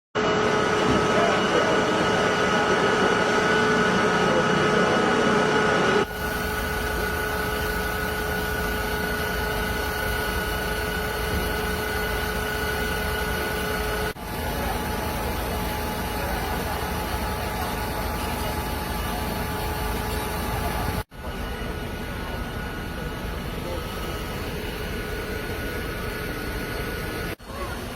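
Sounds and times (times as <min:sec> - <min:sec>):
heavy engine running with whine: 0:00.2 - 0:27.9.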